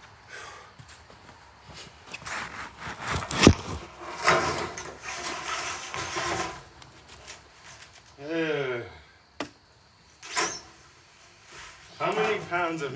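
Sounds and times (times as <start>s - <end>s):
materials scraping and rattling: 2.1s - 8.1s.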